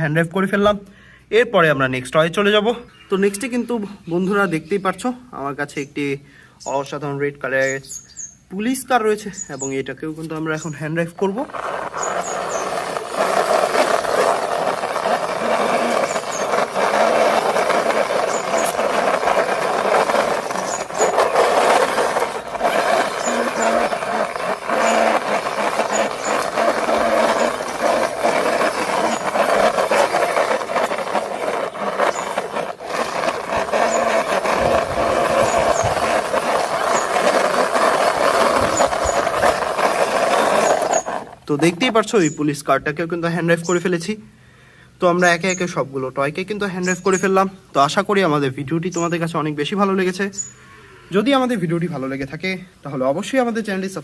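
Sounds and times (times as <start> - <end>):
toy car wheels rolling and rattling: 11.0 - 42.4.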